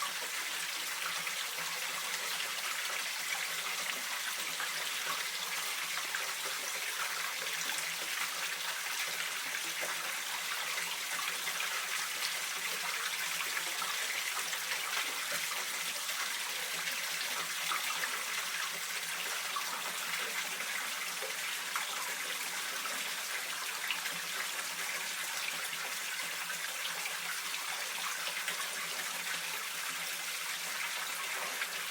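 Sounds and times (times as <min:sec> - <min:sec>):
stream water running: 0:00.0 - 0:31.9.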